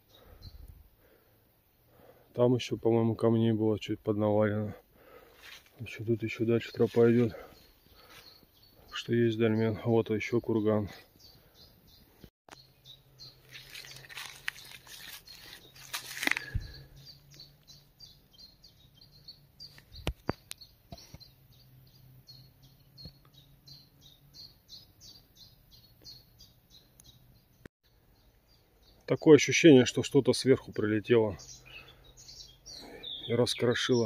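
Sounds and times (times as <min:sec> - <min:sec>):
rustling: 0:13.3 - 0:17.0.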